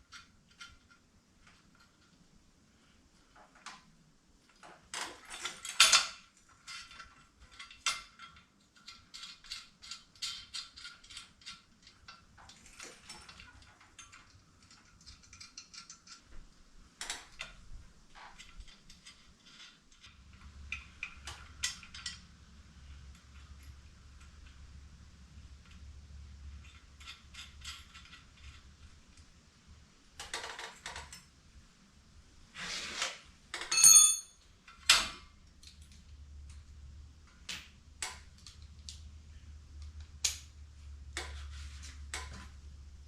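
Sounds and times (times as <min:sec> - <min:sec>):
metal clanks of tools: 0:33.5 - 0:35.2.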